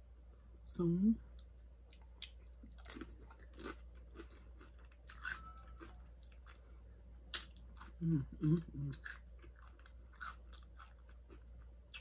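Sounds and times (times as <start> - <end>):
person chewing crunchy chip: 1.8 - 6.7, 7.3 - 12.0.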